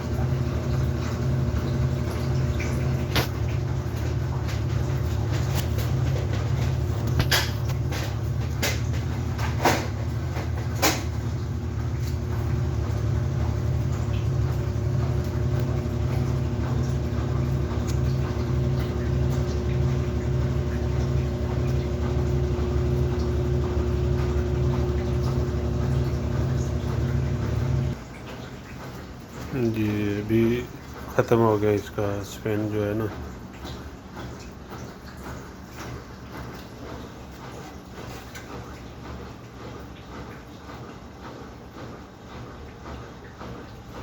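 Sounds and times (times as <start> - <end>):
washing machine spinning: 0.0 - 44.0.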